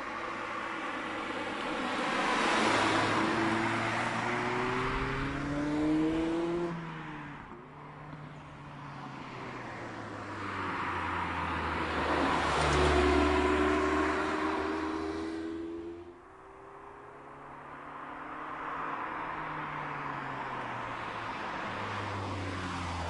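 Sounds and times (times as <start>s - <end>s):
car engine passing by: 0.3s - 7.4s, 8.8s - 17.0s.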